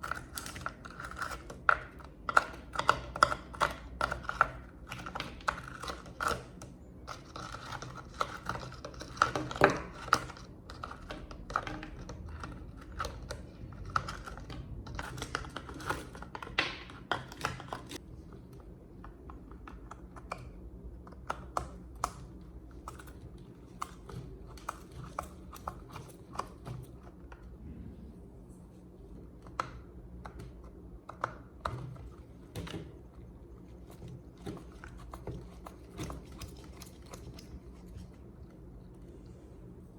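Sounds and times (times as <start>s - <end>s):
low hum: 27.4s - 29.6s.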